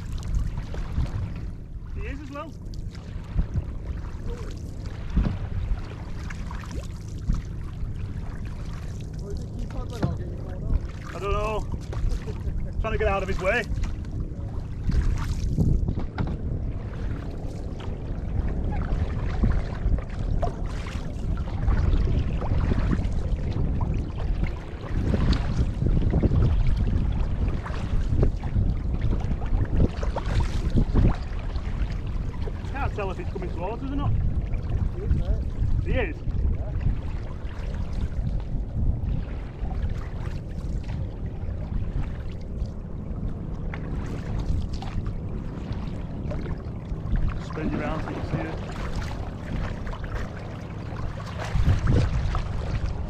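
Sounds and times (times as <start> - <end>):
faint engine drone: 0.0 - 53.0
water splashing and lapping: 0.0 - 53.0
wind buffeting microphone: 0.0 - 53.0.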